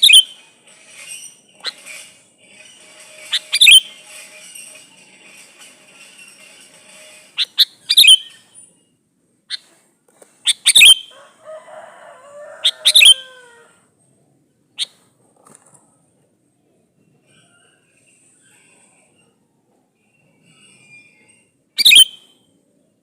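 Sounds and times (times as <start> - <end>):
bird sharp call notes: 3.3 - 3.9.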